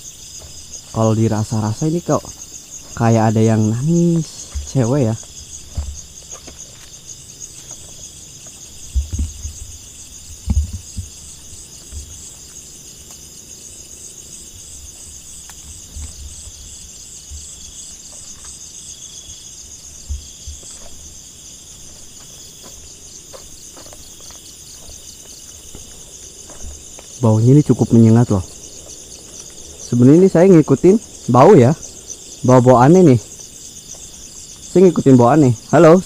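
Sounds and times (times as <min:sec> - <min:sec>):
crickets chirring: 0:00.0 - 0:36.0
low thumps: 0:02.2 - 0:06.8, 0:08.8 - 0:12.3, 0:22.7 - 0:34.5.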